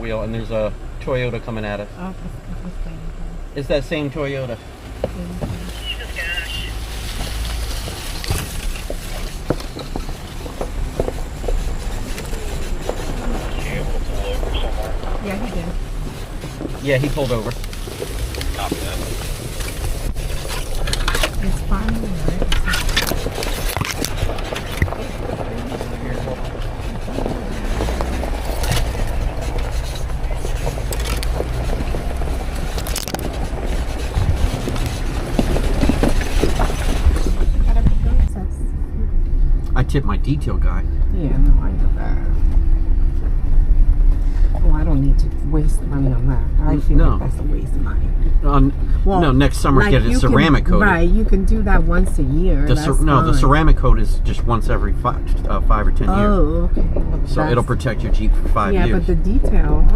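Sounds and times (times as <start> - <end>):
vehicle rumbling on rough trail: 0.0 - 59.9.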